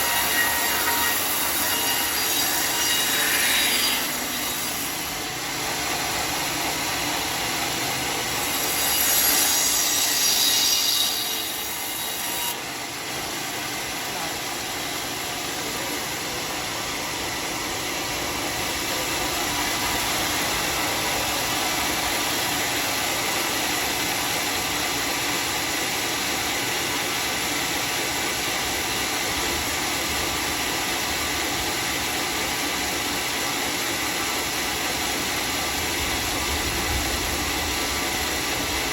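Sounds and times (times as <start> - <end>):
saw blade cutting log: 0.0 - 29.4.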